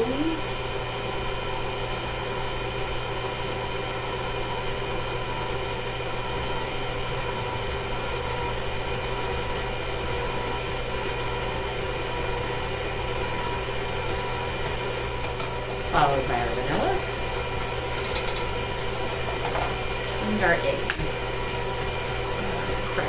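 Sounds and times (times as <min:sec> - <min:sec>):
electric mixer motor whine: 0:00.0 - 0:23.0.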